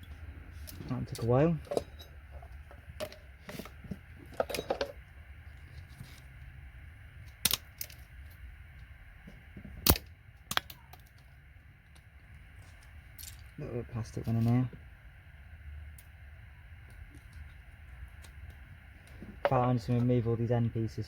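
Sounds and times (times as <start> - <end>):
small parts clicking and tapping: 7.2 - 13.6.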